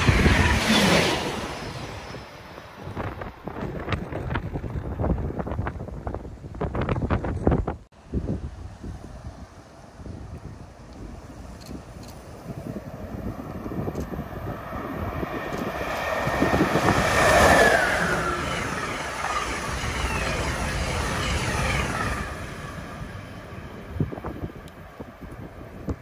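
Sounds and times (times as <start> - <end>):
locomotive whine: 0.0 - 3.9, 12.3 - 26.0
train rushing past: 0.0 - 4.9, 12.3 - 26.0.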